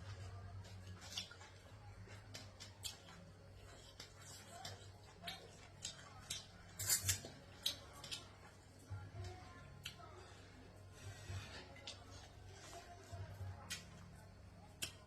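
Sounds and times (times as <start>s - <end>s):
utensils clinking against a dish: 6.8s - 7.3s.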